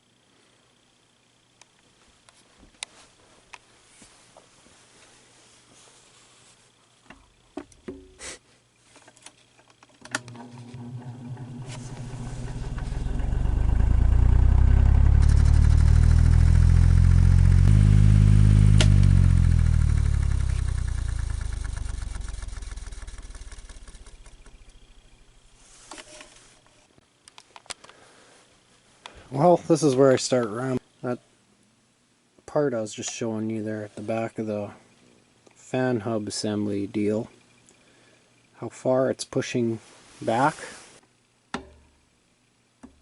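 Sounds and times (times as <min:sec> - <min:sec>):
electric fan motor humming: 0:09.9 - 0:26.7
motor scratching noise: 0:10.4 - 0:13.2, 0:14.9 - 0:26.4.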